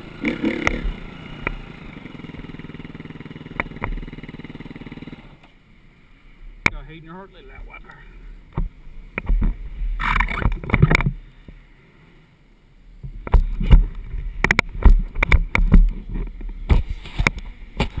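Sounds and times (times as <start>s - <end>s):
sharp irregular knocks and bumps: 13.0s - 18.0s.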